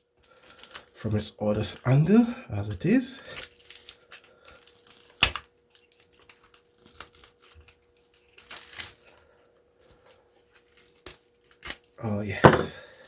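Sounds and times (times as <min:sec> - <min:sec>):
faint steady hum: 0:09.0 - 0:13.0.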